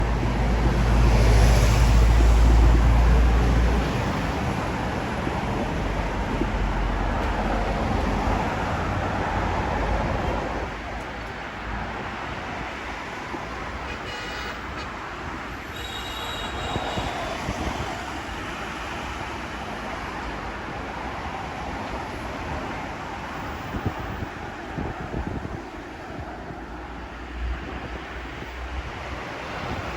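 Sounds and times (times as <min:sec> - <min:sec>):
road traffic: 0:00.0 - 0:29.9
wind buffeting microphone: 0:16.4 - 0:19.5, 0:20.4 - 0:29.9.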